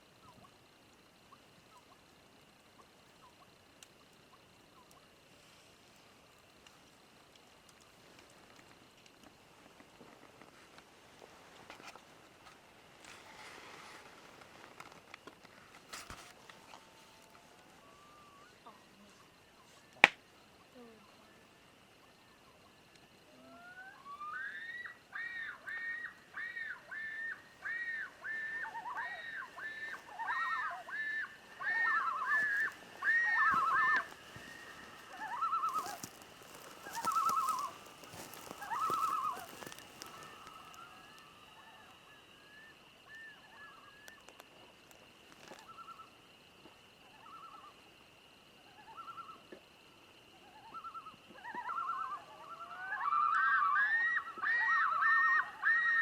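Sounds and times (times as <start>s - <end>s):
faint steady high tone: 16.0s - 20.0s
animal calling in short calls: 23.3s - 41.2s.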